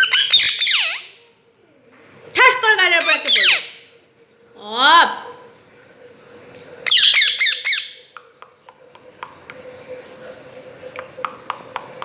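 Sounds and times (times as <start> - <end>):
parrot squawking: 0.0 - 1.2, 3.0 - 3.8, 6.8 - 8.1.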